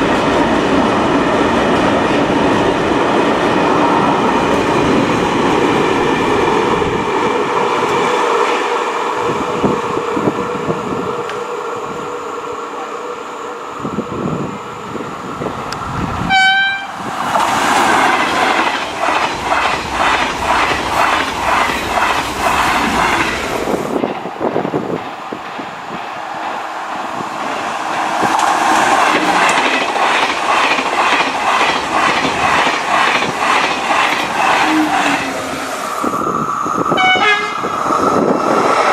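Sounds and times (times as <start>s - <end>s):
train horn blast: 16.2s - 17.0s, 34.6s - 35.5s, 36.9s - 37.7s
train wheels clattering over rail joints: 17.2s - 26.0s, 27.5s - 35.6s.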